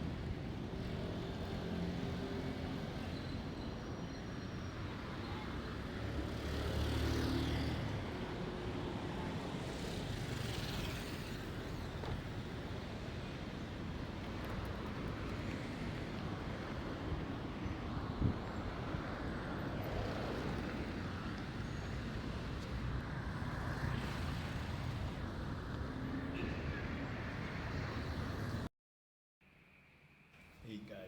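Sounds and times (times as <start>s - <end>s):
passing road traffic: 4.7s - 28.7s.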